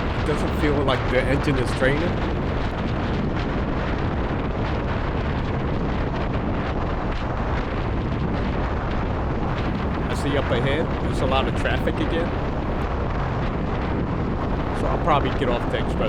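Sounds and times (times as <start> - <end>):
wind rush on microphone: 0.0 - 16.0
motorcycle engine droning: 14.4 - 16.0.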